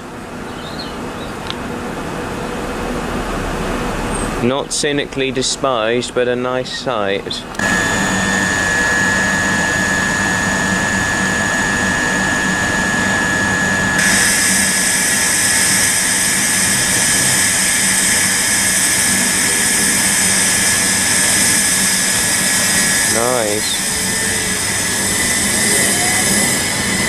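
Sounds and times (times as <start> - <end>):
electric train rushing hum: 0.0 - 27.0
higher-pitched whines: 6.5 - 27.0.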